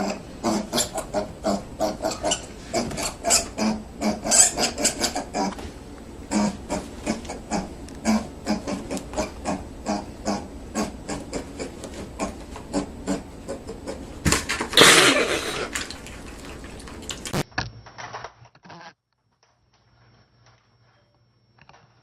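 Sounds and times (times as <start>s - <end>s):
harsh burst of noise: 14.8s - 15.7s.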